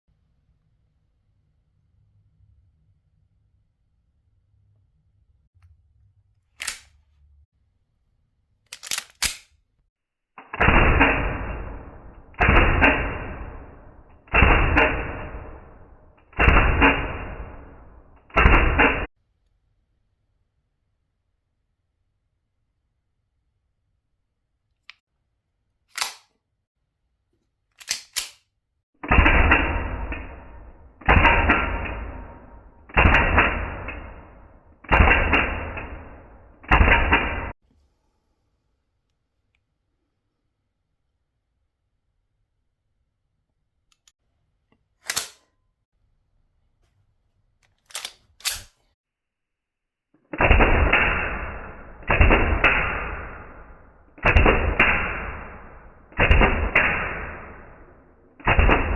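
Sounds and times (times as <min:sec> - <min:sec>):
slowed-down pistol shots: 0:10.4 - 0:19.1, 0:29.0 - 0:37.6, 0:50.3 - 0:58.9.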